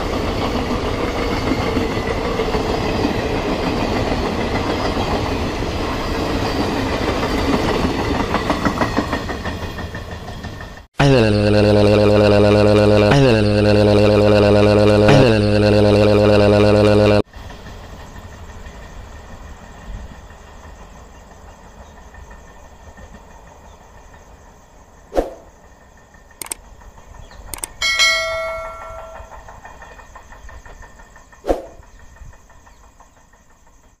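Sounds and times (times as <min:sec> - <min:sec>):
train rumble: 0:00.0 - 0:34.0
clicks: 0:27.6 - 0:29.4
bell ding: 0:27.8 - 0:29.5.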